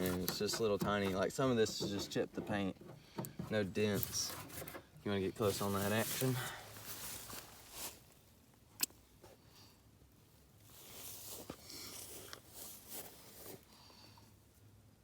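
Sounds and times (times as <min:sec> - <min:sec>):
faint rustling and handling: 0:00.0 - 0:14.6
sharp click: 0:08.8 - 0:09.0.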